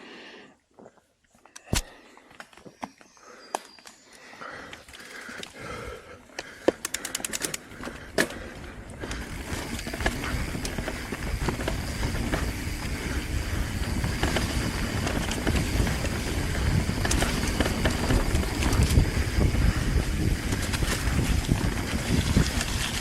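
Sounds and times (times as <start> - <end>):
tyres rolling on trail: 2.0 - 23.0
bike freewheel ticking: 5.2 - 23.0
bike knocks and clicks: 6.4 - 23.0.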